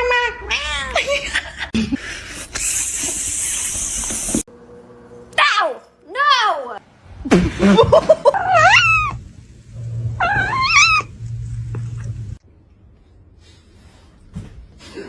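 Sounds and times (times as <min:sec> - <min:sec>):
cat meowing and yowling: 0:08.4 - 0:09.2, 0:10.2 - 0:11.1
low steady hum: 0:08.4 - 0:13.1.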